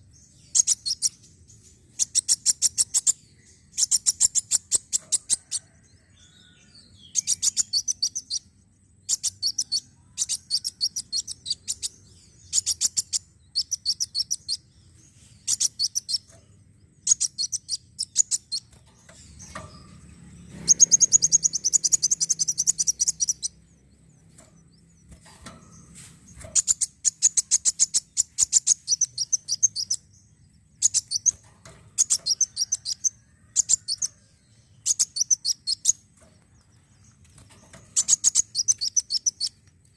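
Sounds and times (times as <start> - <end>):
sunbird chirping: 0.0 - 39.9
bird twittering: 0.5 - 1.2, 17.0 - 18.8, 20.5 - 23.6, 26.6 - 30.0, 37.9 - 39.6.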